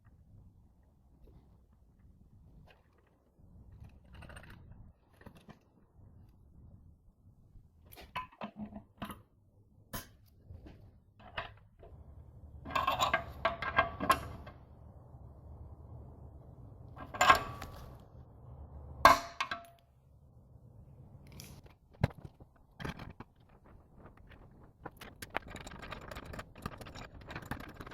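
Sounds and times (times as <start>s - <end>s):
low steady hum: 0.0s - 27.8s
small metal parts clinking: 11.2s - 14.6s.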